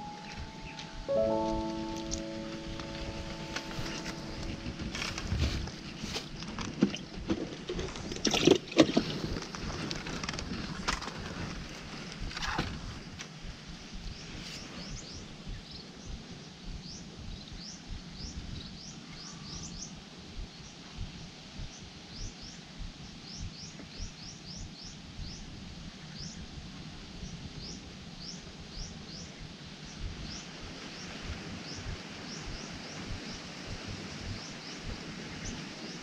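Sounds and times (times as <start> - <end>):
small birds chirping: 0.0 - 7.2, 13.9 - 26.6, 27.2 - 36.0
low rumbling noise: 0.0 - 23.6, 24.6 - 36.0.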